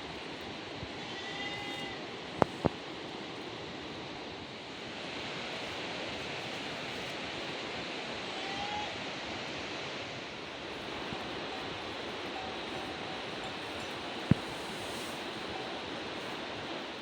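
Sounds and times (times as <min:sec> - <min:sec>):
faint whistle-like call: 0:01.0 - 0:02.0, 0:08.3 - 0:09.0.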